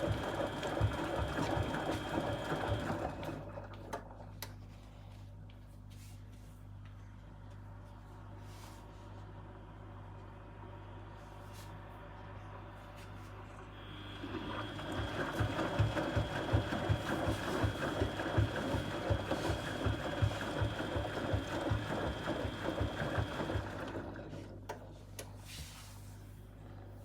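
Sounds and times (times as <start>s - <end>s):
washing machine shaking and knocking: 0.0s - 3.6s, 14.2s - 24.3s.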